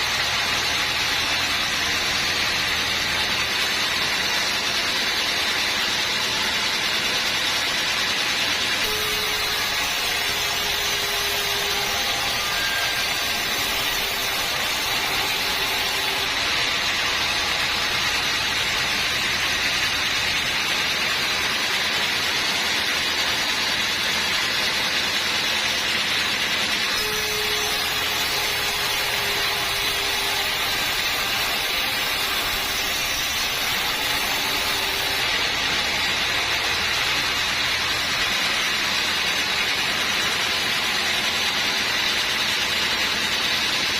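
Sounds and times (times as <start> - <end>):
band sawmill running: 0.0 - 43.9.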